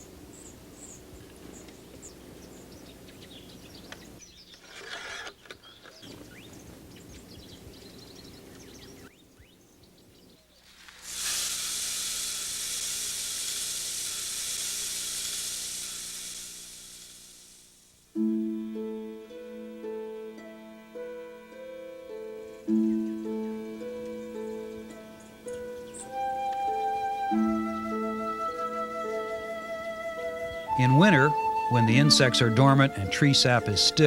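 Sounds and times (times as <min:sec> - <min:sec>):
bird chirps: 0:00.0 - 0:04.8, 0:05.4 - 0:10.8
loud hiss: 0:10.7 - 0:18.2.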